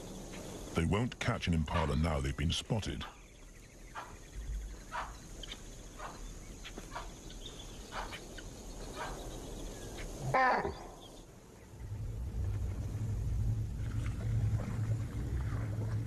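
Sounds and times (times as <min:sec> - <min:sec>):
animal alarm calls: 0:04.8 - 0:07.2
faint high hum: 0:09.4 - 0:16.0.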